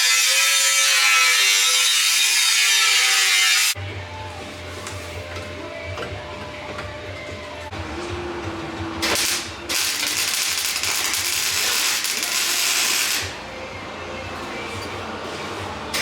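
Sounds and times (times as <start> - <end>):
welder crackling hiss: 9.0 - 13.4.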